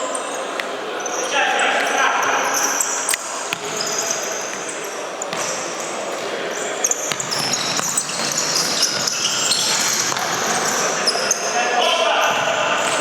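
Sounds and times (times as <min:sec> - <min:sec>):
shoes squeaking on floor: 0:00.0 - 0:11.6
ball kicked and bouncing: 0:03.5 - 0:04.7.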